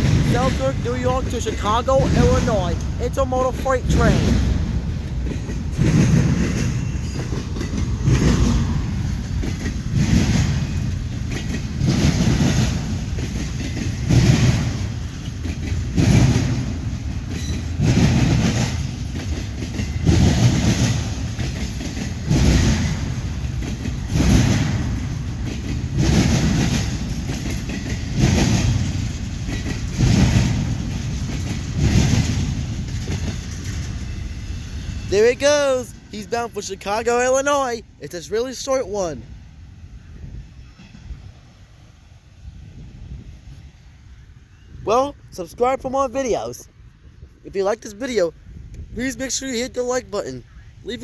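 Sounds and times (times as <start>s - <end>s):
train wheels clacking over rails: 0.0s - 39.1s
freight train rumble: 0.0s - 51.0s.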